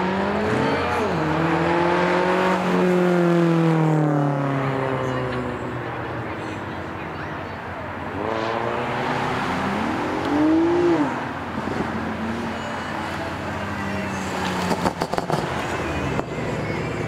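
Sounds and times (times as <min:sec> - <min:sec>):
car engine revving: 0:00.0 - 0:05.7, 0:08.0 - 0:12.6.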